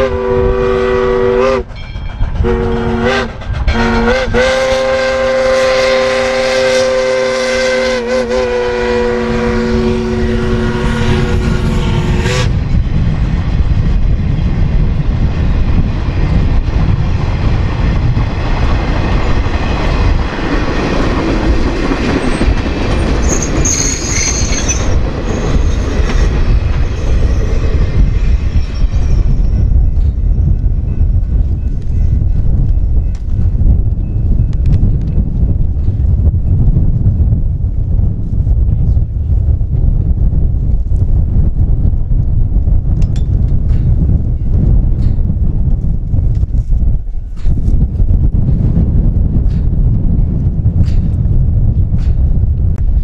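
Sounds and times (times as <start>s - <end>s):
locomotive horn chord: 0.0s - 1.6s, 2.4s - 12.5s
high wheel squeal: 23.2s - 29.8s.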